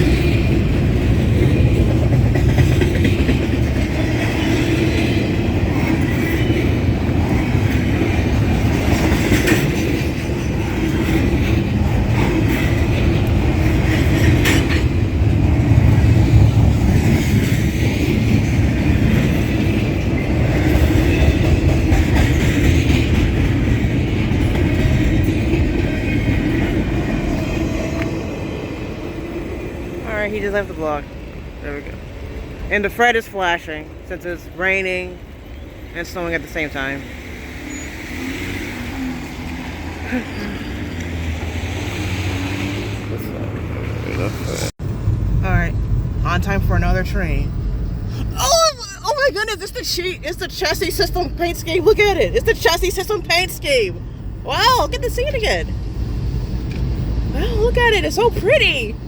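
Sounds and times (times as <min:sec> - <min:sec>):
freight train wheels clattering: 0:00.0 - 0:27.4
train cars clanking: 0:00.0 - 0:28.6.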